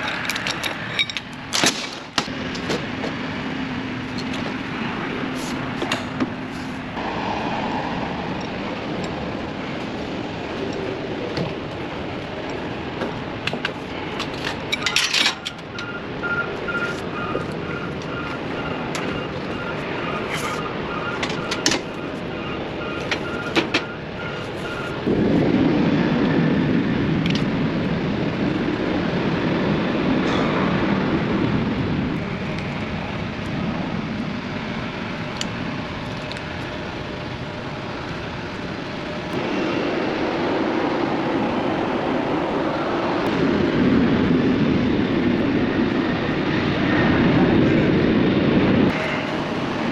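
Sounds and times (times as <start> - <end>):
truck machinery rumble: 0.0 - 49.9
loud low rumble: 6.8 - 13.3, 24.9 - 49.9.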